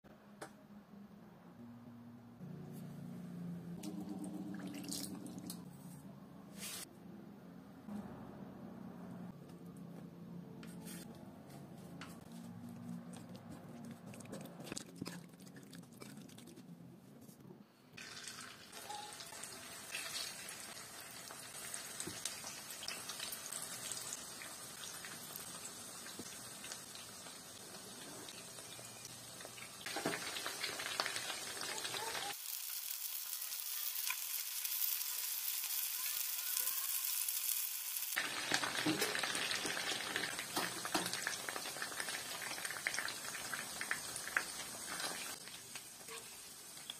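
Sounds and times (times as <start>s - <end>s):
chicken sizzling in oil: 18.0s - 46.9s.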